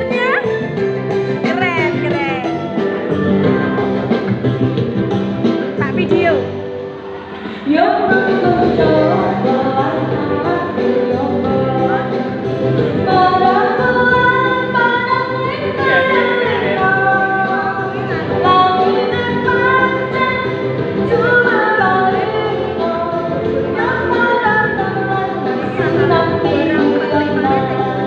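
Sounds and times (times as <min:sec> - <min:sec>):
musical accompaniment: 0:00.0 - 0:28.0
person singing melody: 0:15.5 - 0:19.1.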